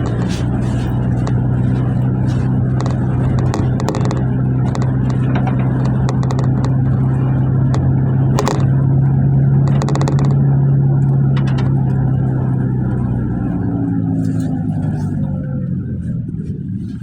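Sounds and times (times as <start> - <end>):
cabin rattles and clicks: 0.0 - 8.8, 9.6 - 10.4
sharp clatter: 0.0 - 13.6
minibus engine and road drone: 0.0 - 17.0.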